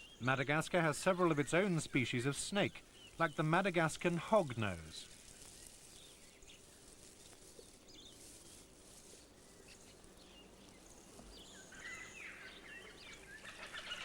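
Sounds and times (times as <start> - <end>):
high bird chirps: 9.5 - 14.0.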